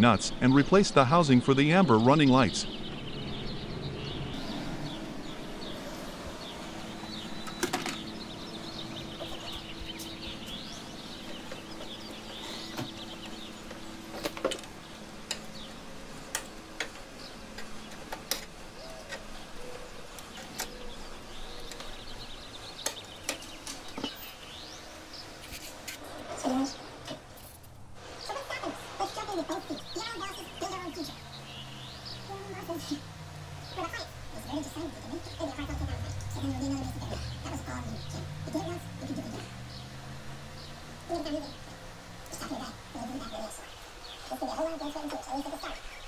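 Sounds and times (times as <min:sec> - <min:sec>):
birds chirping: 0:00.0 - 0:46.0
low steady hum: 0:00.0 - 0:46.0.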